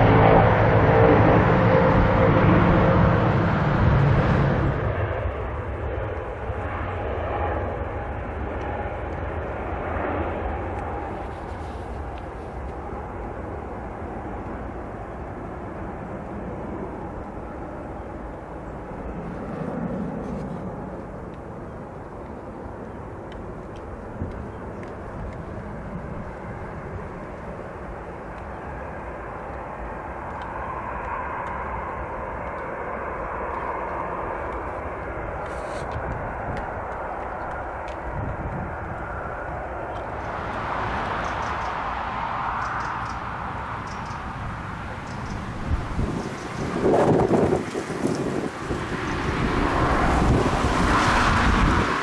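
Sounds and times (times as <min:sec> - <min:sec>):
turboprop engines rumbling: 0:00.0 - 0:52.0.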